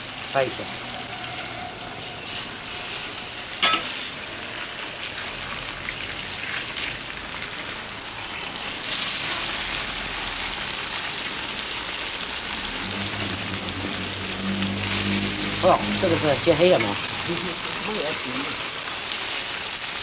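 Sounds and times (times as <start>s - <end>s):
tofu sizzling in oil: 0.0s - 20.0s
metal spatula scraping wok: 12.4s - 18.6s.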